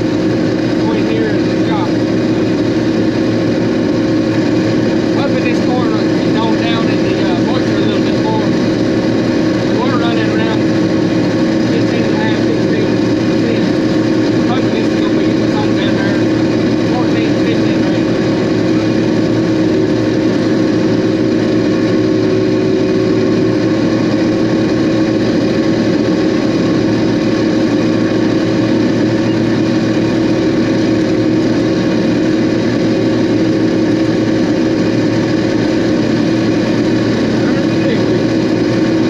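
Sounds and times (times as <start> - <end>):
combine harvester engine drone: 0.0 - 39.0.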